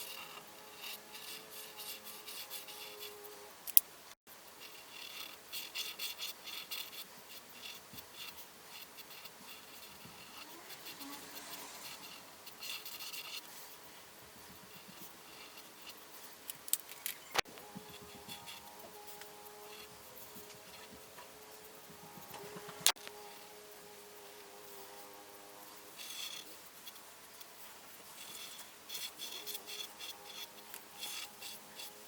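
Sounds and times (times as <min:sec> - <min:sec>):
colouring tool scratching on paper: 0:00.0 - 0:03.4, 0:04.5 - 0:16.4, 0:17.4 - 0:32.0.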